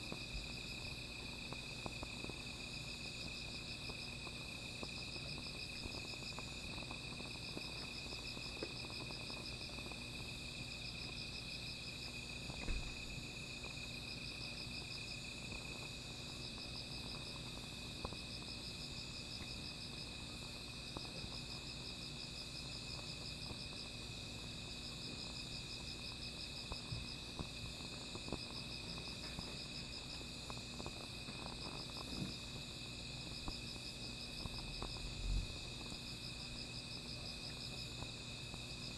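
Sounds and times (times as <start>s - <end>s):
fire crackling and popping: 3.2s - 10.3s.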